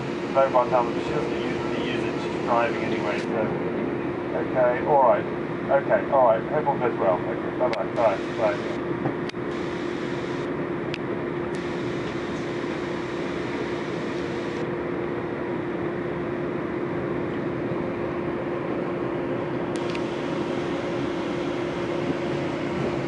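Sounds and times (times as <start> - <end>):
train rumbling inside carriage: 19.4 - 23.0.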